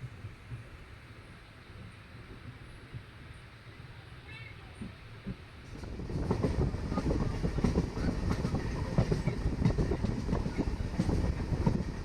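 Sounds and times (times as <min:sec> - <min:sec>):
train rumbling on rails: 0:00.0 - 0:12.0
wheel clatter on track: 0:05.3 - 0:12.0.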